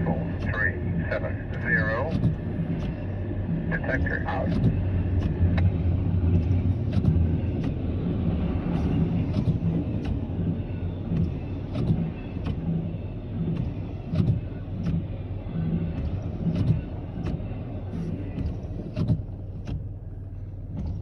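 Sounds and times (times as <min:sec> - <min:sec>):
train cars rumbling: 0:00.0 - 0:21.0.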